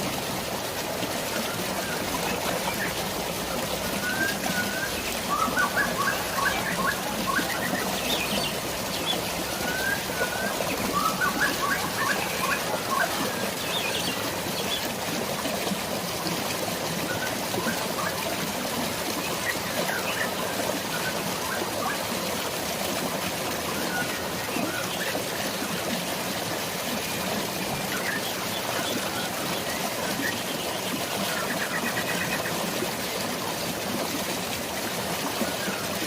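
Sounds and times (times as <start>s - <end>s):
flowing water: 0.0s - 36.0s
rain: 0.0s - 36.0s
birds chirping: 1.4s - 14.9s.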